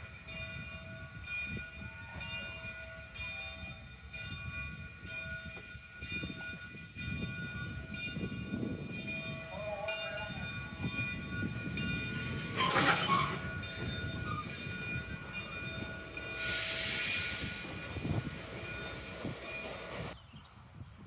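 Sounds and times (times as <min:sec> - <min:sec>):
railroad cars rolling slowly: 0:00.0 - 0:21.0
loud hiss of air: 0:16.2 - 0:20.1.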